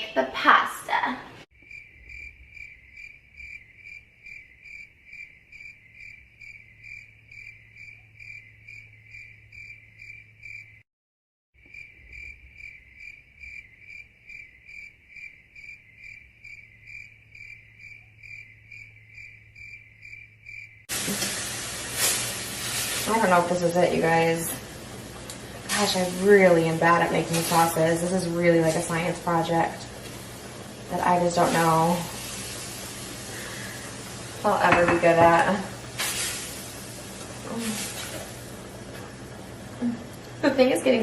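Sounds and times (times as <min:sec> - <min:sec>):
crickets chirping: 0:01.6 - 0:10.8, 0:11.6 - 0:20.9.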